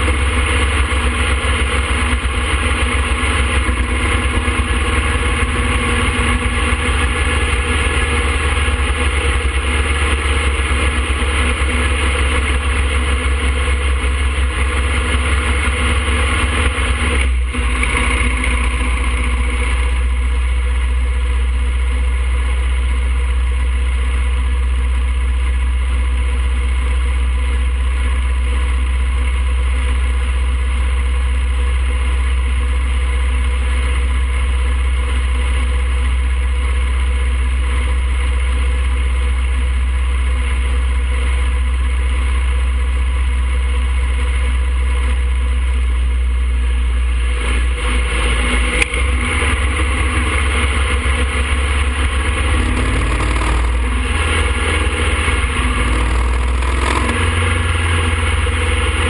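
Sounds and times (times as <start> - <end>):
road and wind noise: 0.0 - 20.7
motorcycle engine running: 0.0 - 59.0.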